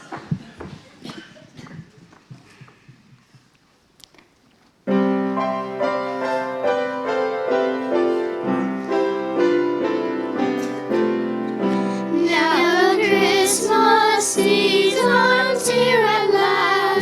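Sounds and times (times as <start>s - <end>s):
piano playing chords and melody: 4.9s - 17.0s.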